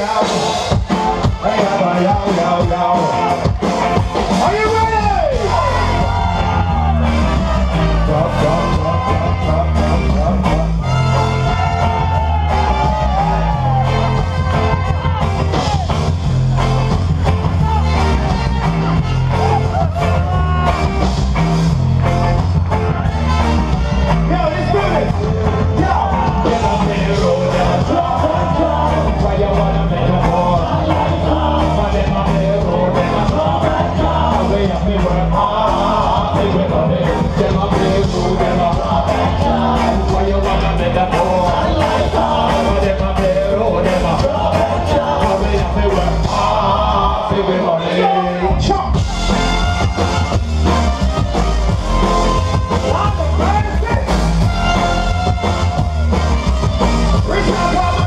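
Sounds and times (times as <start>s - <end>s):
drum beat: 0.0s - 9.2s, 10.2s - 46.8s, 49.0s - 58.0s
live band playing: 0.0s - 58.0s
person singing: 24.0s - 48.6s.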